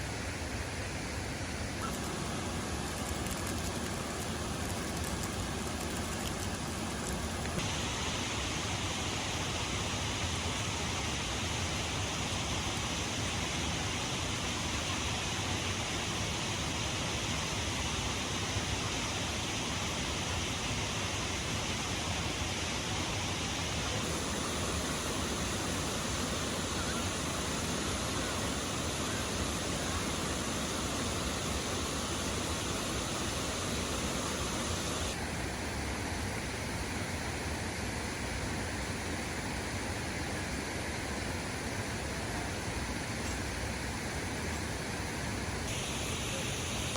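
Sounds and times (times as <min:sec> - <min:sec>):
waterfall rushing: 0:24.0 - 0:35.2.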